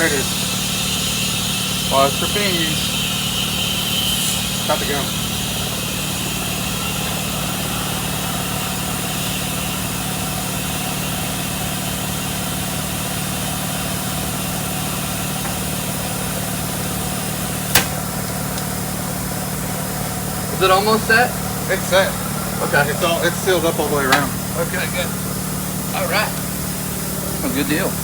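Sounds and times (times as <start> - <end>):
machine humming: 0.0 - 28.0
sharp click: 17.7 - 18.0.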